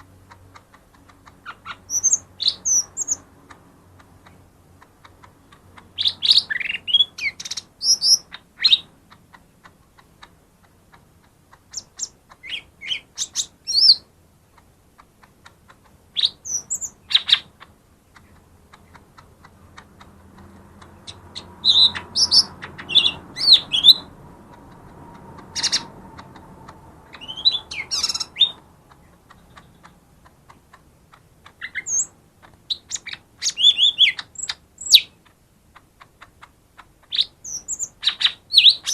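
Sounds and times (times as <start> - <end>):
bird chirping and whistling: 1.5 - 3.2, 6.0 - 8.8, 11.8 - 14.0, 16.2 - 17.5, 21.1 - 24.2, 25.5 - 26.3, 27.1 - 28.6, 31.6 - 32.1, 32.7 - 35.2, 37.1 - 38.9.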